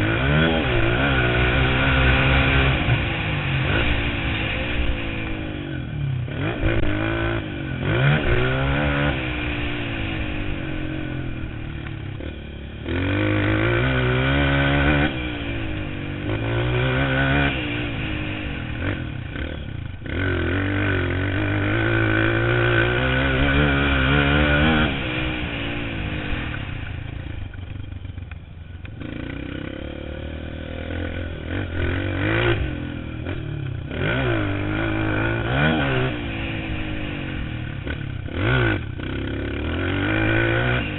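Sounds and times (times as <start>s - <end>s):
clatter: 0.0s - 13.8s
motocross bike engine revving: 0.0s - 40.9s.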